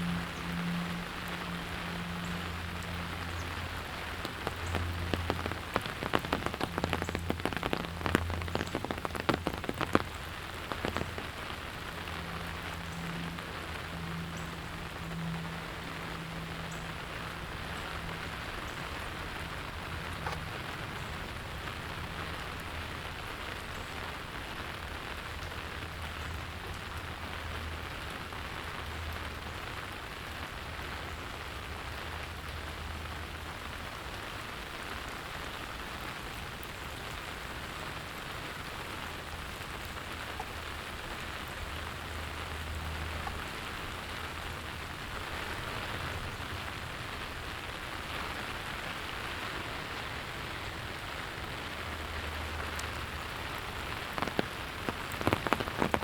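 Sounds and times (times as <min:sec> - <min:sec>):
low steady hum: 0:00.0 - 0:29.9
rain pattering on surfaces: 0:00.0 - 0:56.0.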